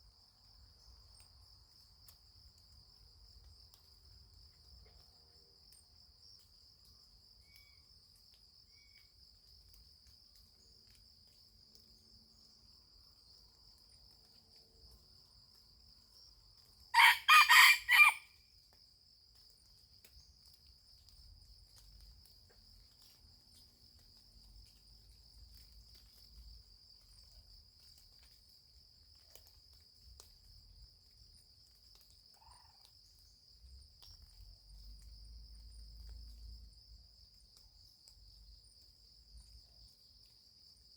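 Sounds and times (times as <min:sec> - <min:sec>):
high insect trill: 0:02.7 - 0:40.9
rooster crowing: 0:16.9 - 0:18.3.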